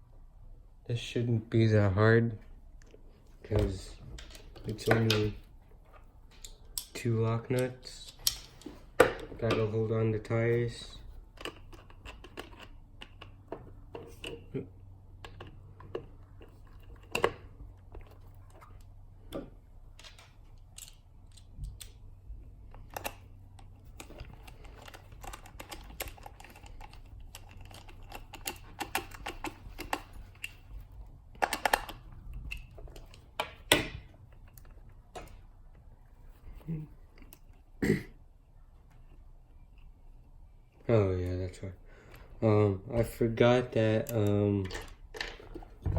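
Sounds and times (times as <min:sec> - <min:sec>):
low steady hum: 0:00.0 - 0:45.9
small tools and plastic parts clicking: 0:04.1 - 0:37.7, 0:43.9 - 0:45.9.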